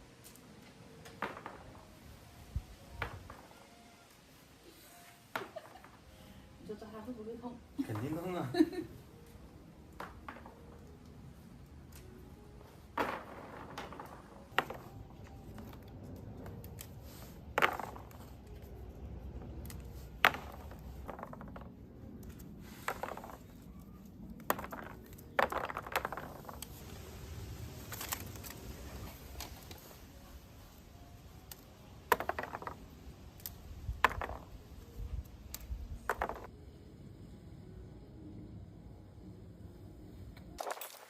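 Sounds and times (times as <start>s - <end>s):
small hard objects clicking: 13.0s - 30.0s, 31.4s - 36.5s.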